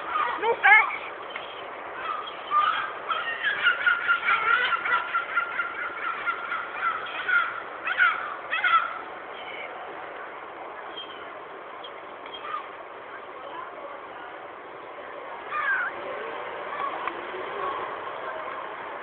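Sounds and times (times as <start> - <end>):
young gull calling: 0.0 - 9.7.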